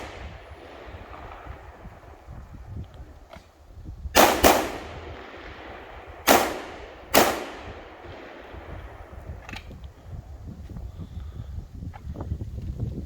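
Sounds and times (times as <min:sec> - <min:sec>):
rifle shots with echo: 0:00.0 - 0:02.6, 0:04.1 - 0:09.6.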